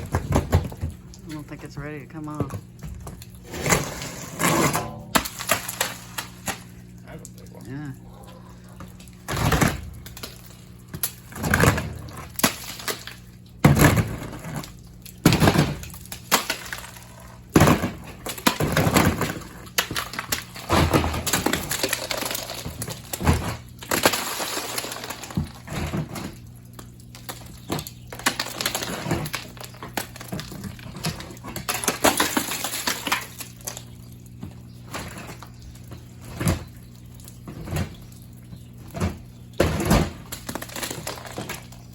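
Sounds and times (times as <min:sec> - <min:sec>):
ice shattering: 0:03.4 - 0:06.7, 0:11.0 - 0:25.9, 0:28.1 - 0:33.9, 0:39.8 - 0:41.9
ice fragments clattering: 0:16.2 - 0:17.4, 0:18.2 - 0:25.6, 0:28.1 - 0:33.8, 0:40.3 - 0:41.9.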